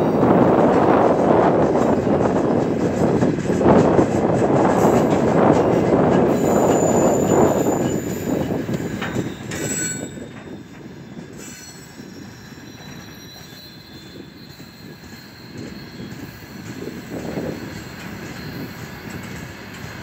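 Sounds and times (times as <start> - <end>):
freight train rolling on rails: 0.0 - 20.0
high wheel squeal: 4.2 - 20.0.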